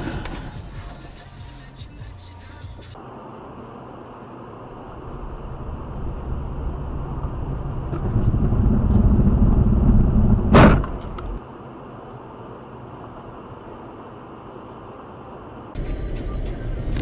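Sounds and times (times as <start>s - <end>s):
car rumble: 0.0s - 17.0s
low steady hum: 4.4s - 11.4s
crash of impact: 10.4s - 11.4s.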